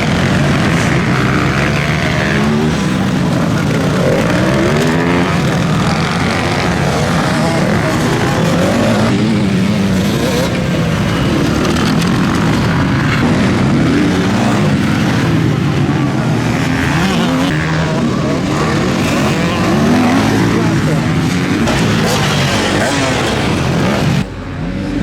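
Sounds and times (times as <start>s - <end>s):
motocross bikes revving: 0.0s - 25.0s.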